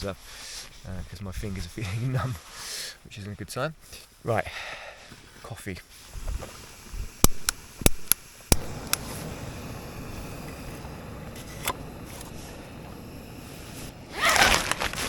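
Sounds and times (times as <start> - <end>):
gas burner hissing: 5.0 - 15.0
gas stove igniter clicks: 7.2 - 9.4.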